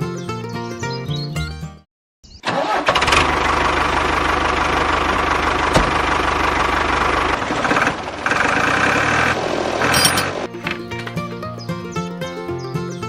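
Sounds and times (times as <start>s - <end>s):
small engine knocking: 2.8s - 10.8s.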